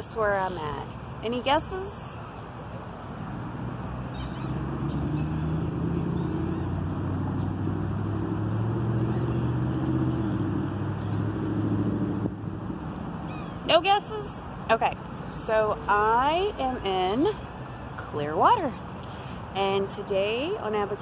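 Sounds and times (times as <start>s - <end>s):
engine humming: 0.7s - 17.1s.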